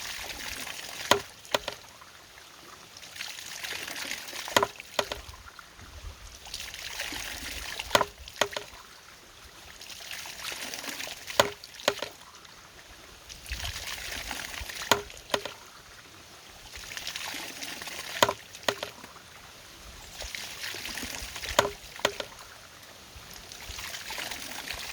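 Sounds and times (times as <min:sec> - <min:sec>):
water pouring: 0:00.0 - 0:02.0, 0:03.0 - 0:05.6, 0:06.4 - 0:09.0, 0:09.6 - 0:12.3, 0:13.3 - 0:15.8, 0:16.6 - 0:19.2, 0:20.0 - 0:22.6, 0:23.5 - 0:24.9
sharp wooden knock: 0:01.1 - 0:01.8, 0:04.6 - 0:05.2, 0:07.9 - 0:08.7, 0:11.4 - 0:12.1, 0:14.9 - 0:15.6, 0:18.2 - 0:19.0, 0:21.6 - 0:22.3.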